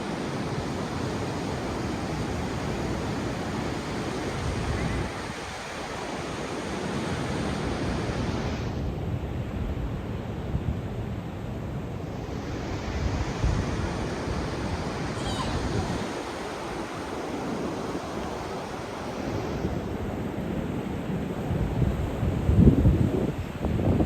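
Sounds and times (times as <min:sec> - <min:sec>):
ocean surf washing on beach: 0:00.0 - 0:24.0
wind buffeting microphone: 0:12.1 - 0:24.0.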